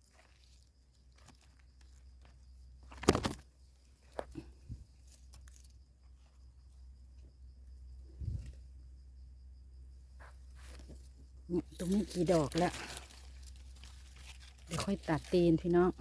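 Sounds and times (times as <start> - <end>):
rustling and crackling: 10.2 - 16.0.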